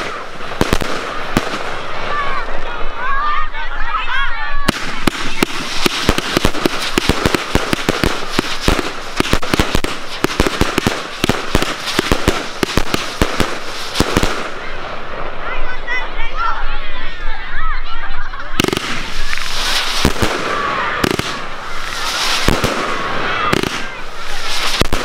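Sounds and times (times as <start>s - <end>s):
fireworks bangs and crackles: 0.0s - 16.7s, 18.5s - 25.0s.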